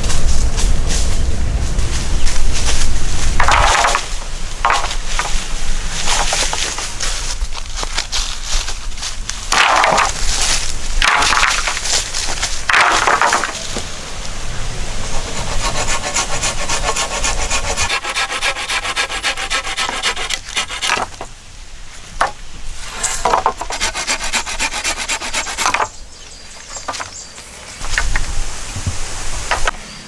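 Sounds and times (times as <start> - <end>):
hand tool strokes on wood: 15.0 - 21.1, 22.8 - 25.9.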